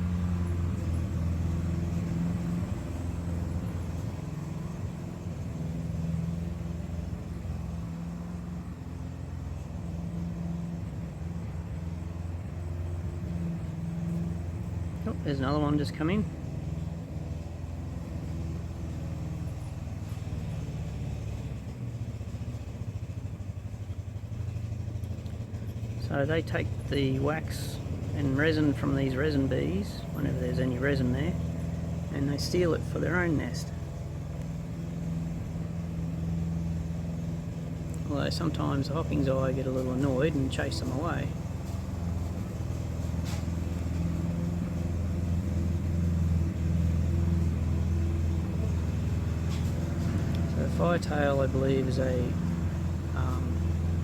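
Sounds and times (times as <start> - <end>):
low mechanical hum with pulsing beat: 0.0 - 54.0.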